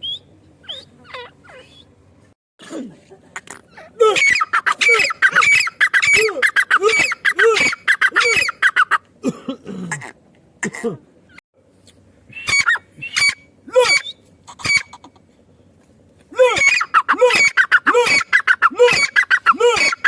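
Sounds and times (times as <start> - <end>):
bird harsh squawking calls: 3.7 - 9.0, 12.3 - 15.2, 16.5 - 20.0.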